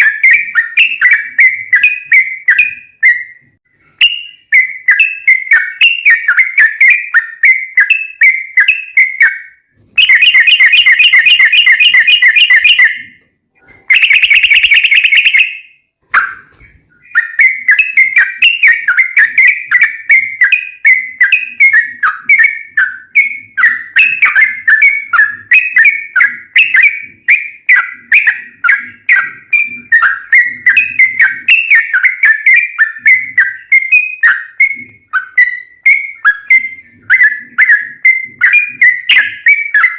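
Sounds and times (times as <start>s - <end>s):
bulbul chattering song: 0.0s - 13.1s, 13.8s - 39.9s
rapid rolling bird trills: 16.2s - 39.9s.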